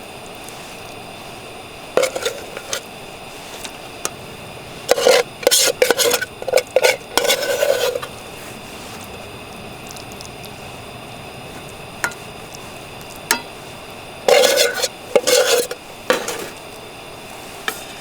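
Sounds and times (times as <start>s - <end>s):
utensil scraping metal pan: 2.0s - 2.9s, 4.8s - 8.1s, 12.0s - 12.3s, 13.3s - 13.6s, 14.2s - 16.6s, 17.6s - 18.0s.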